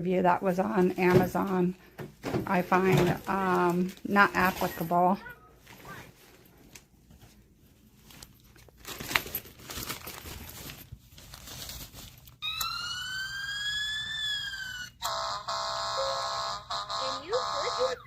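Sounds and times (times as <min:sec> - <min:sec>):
handling noise rustling: 0:00.7 - 0:12.4
toy siren wail: 0:12.4 - 0:18.0.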